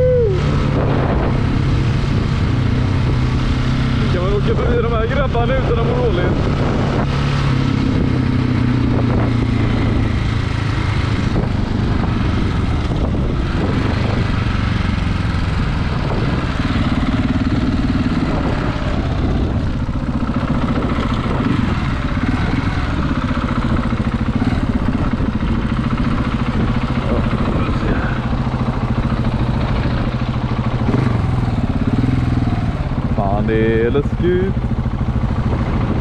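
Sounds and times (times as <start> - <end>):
motorcycle engine running: 0.0 - 36.0
wind and road noise: 0.0 - 36.0.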